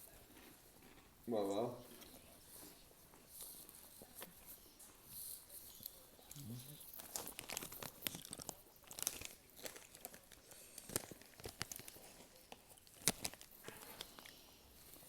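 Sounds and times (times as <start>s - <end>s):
snack packet crinkling: 5.7s - 15.0s.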